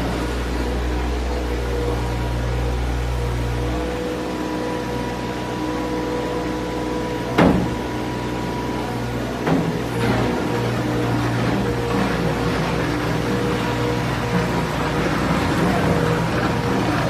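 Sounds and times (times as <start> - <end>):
loader engine humming: 0.0 - 17.0.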